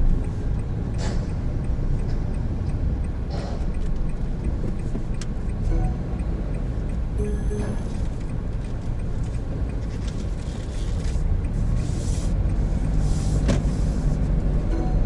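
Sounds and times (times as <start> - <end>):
car cabin road and engine noise: 0.0 - 15.0
hiss: 11.8 - 14.1.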